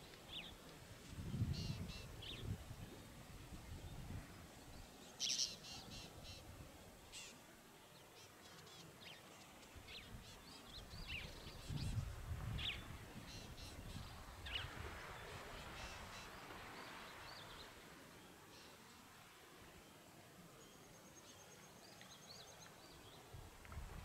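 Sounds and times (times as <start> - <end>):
birds chirping and trilling: 8.4 - 12.0.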